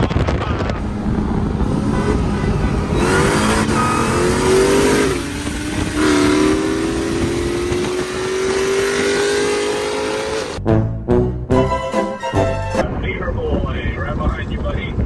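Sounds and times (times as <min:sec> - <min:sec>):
car engine accelerating hard: 0:00.8 - 0:10.6.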